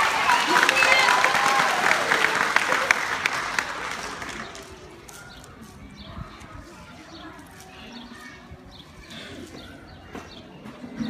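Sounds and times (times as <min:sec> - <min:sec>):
applause: 0:00.0 - 0:04.8.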